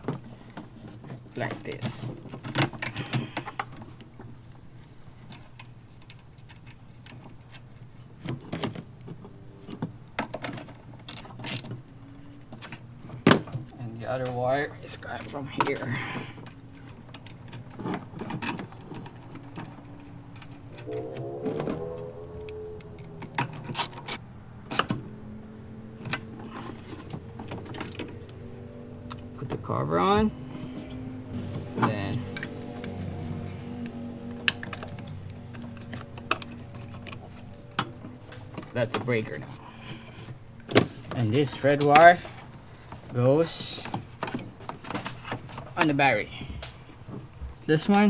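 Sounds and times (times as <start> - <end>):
steady low hum: 19.8 - 25.7.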